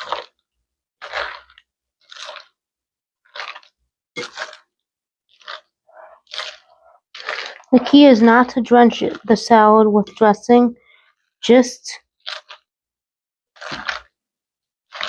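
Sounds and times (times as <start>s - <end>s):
lettuce leaves crunching: 0.0s - 0.3s, 6.2s - 9.5s, 13.6s - 14.1s.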